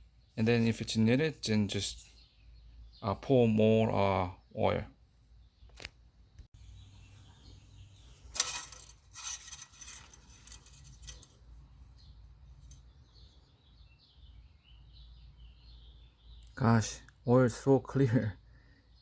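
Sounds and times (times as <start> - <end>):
birds chirping faintly: 0.0 - 19.0
dipstick rustling and clinking: 8.3 - 13.0.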